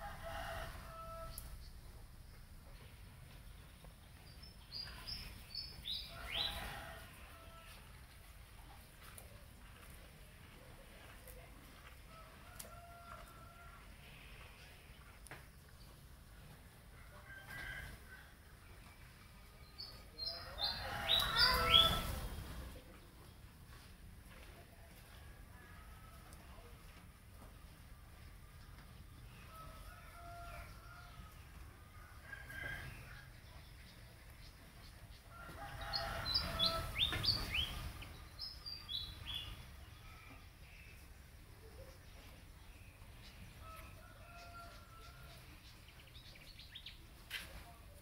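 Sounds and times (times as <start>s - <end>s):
birds chirping: 19.6s - 22.2s, 32.9s - 47.0s.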